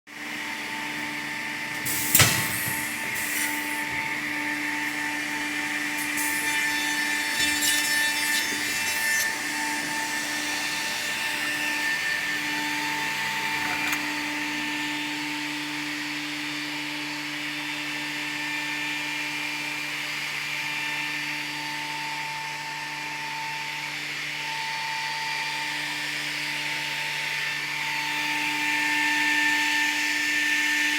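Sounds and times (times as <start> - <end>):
machine motor humming: 0.3 - 14.5
machine rasping: 0.7 - 12.2.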